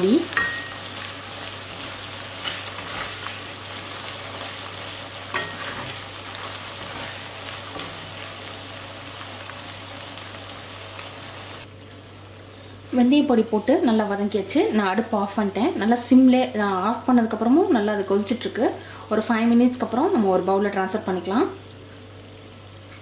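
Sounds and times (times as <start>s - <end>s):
pickle sizzling in oil: 0.0s - 12.7s
spatula scraping pan: 1.7s - 3.4s, 4.0s - 8.1s.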